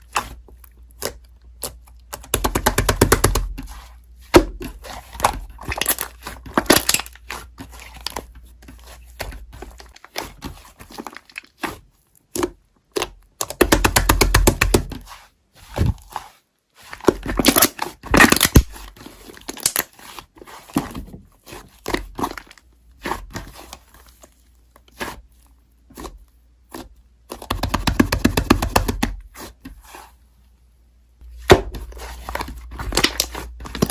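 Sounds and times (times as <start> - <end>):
slime crackling and popping: 5.6 - 7.5.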